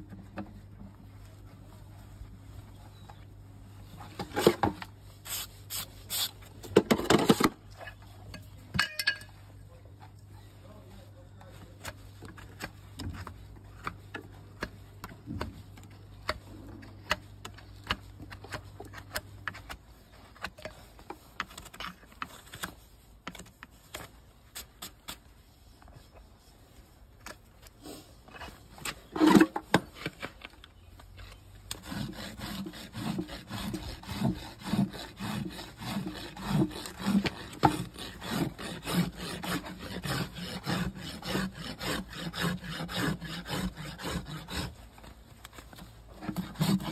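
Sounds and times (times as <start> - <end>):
hoof being cut scrapes and clicks: 3.8 - 10.2, 11.4 - 46.9
rasp filing hoof: 31.2 - 46.9.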